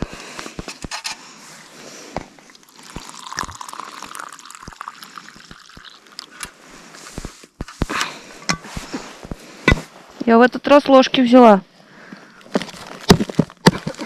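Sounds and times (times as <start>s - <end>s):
hot water pouring into cup: 2.4s - 6.6s.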